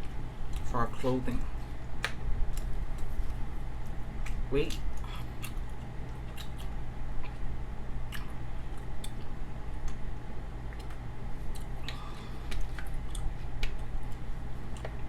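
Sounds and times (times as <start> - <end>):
steady low hum: 0.0 - 15.0
wet chewing mouth clicks: 4.2 - 7.4, 8.1 - 10.0, 10.7 - 15.0.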